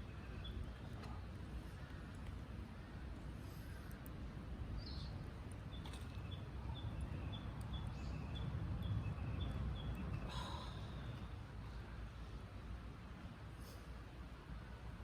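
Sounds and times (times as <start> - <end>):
bird chirping: 4.8 - 10.4.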